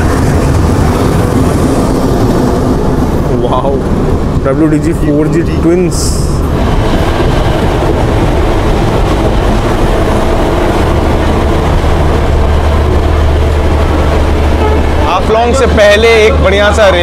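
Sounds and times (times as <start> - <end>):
low drone: 0.0 - 17.0
train wheels rumbling on track: 0.0 - 17.0.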